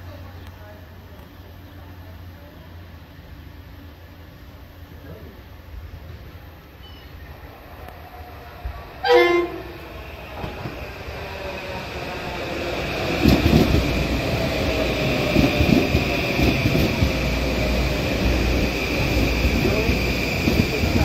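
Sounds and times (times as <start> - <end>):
train passing rumble: 0.0 - 21.0
train horn blast: 9.0 - 9.8.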